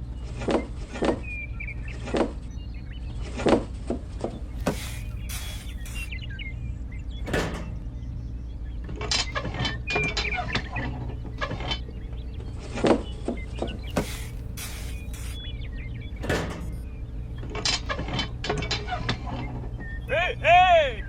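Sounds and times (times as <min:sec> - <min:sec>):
small electric motor humming: 0:04.6 - 0:06.1, 0:13.8 - 0:15.4
clicks and knocks of moving parts: 0:08.8 - 0:12.0, 0:16.2 - 0:16.8, 0:17.4 - 0:19.6.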